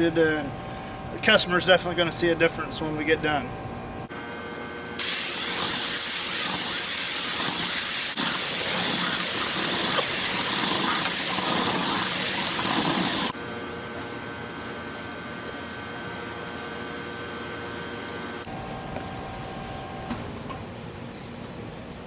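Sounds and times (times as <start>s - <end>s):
air hissing through vent duct: 5.0s - 13.4s.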